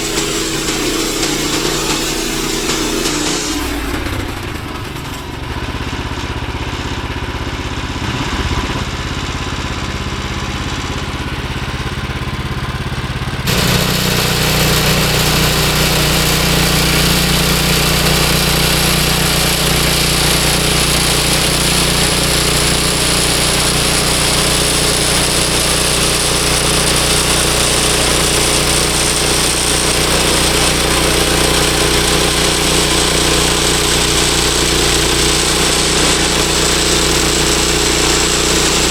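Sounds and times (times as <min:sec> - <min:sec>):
saw blade whine and hiss: 0:00.0 - 0:05.6, 0:13.5 - 0:38.9
gas engine idling: 0:00.0 - 0:07.9, 0:10.0 - 0:38.9.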